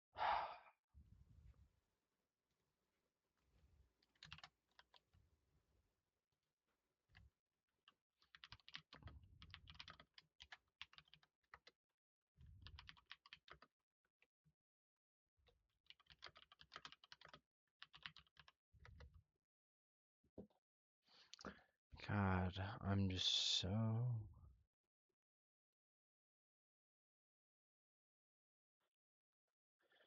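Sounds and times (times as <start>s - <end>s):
typing on computer keyboard: 4.1s - 5.0s, 8.2s - 11.8s, 12.6s - 13.7s, 15.8s - 19.1s.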